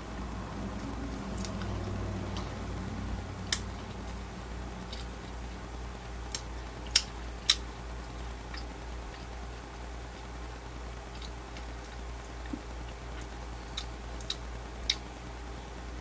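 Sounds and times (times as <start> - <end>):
person chewing jerky: 0.8 - 2.6, 3.4 - 9.4, 11.0 - 15.2.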